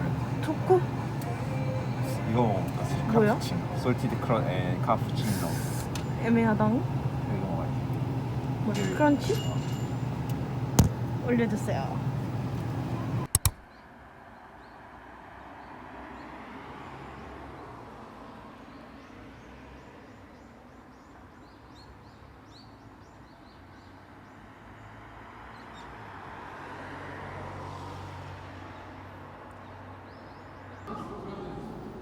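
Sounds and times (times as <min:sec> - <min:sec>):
steady background noise: 0:00.0 - 0:13.4.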